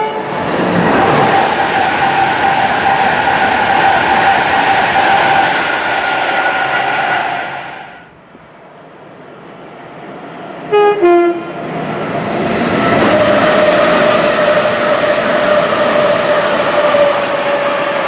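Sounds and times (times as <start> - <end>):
two-tone train horn: 0.0 - 0.4, 10.6 - 11.6
steady whine of passing train: 0.0 - 18.0
train passing with rushing noise: 0.0 - 18.0.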